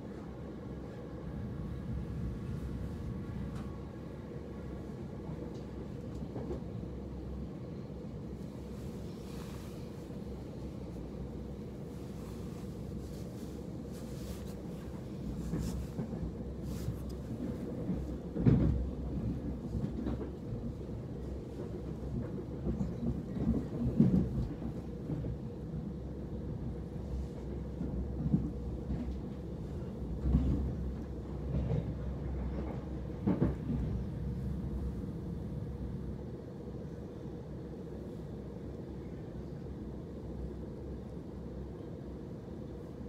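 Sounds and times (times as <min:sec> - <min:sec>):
train running rumble: 0:00.1 - 0:43.0
train thumps and knocks: 0:17.3 - 0:20.8, 0:30.0 - 0:34.8.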